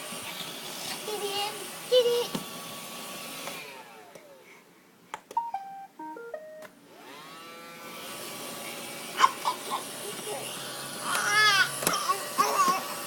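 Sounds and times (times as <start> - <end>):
vacuum cleaner motor: 0.0 - 4.4, 6.9 - 13.0
beeps at changing pitches: 5.4 - 6.7.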